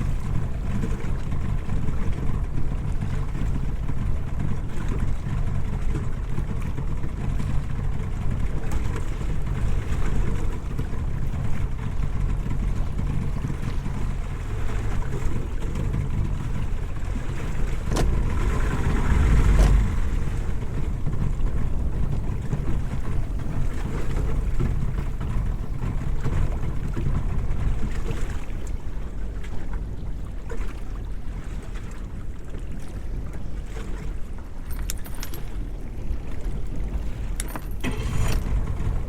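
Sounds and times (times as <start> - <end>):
water against boat hull: 0.0 - 39.0
wind on microphone: 7.3 - 29.0.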